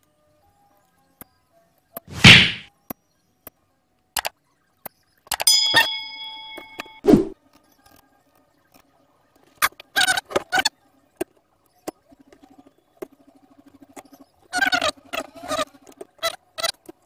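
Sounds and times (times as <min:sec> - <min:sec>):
short swoosh: 0:02.1 - 0:02.7, 0:07.0 - 0:07.4
bell ding: 0:05.5 - 0:07.0.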